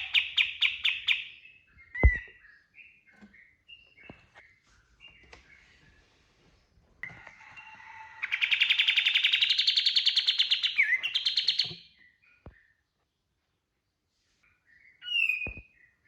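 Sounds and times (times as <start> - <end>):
songbird singing fast burst song: 8.2 - 12.0.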